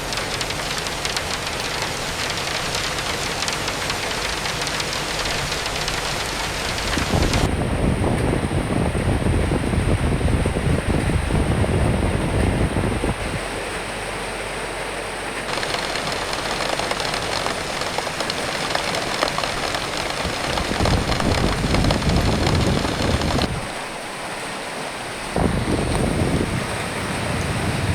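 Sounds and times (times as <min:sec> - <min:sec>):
rain hissing: 0:00.0 - 0:07.5, 0:15.5 - 0:27.7
wind gusts rumbling: 0:00.0 - 0:13.2, 0:15.5 - 0:23.8.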